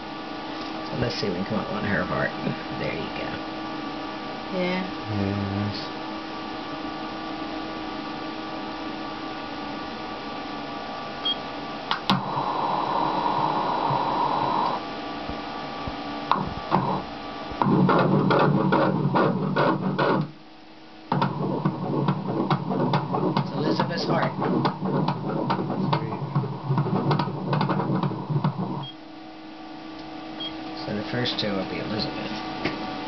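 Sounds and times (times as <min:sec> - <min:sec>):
ultrasound machine hum: 0:00.0 - 0:33.0
fetal heartbeat doppler pulsing: 0:12.1 - 0:14.8, 0:16.3 - 0:20.3, 0:21.1 - 0:28.9.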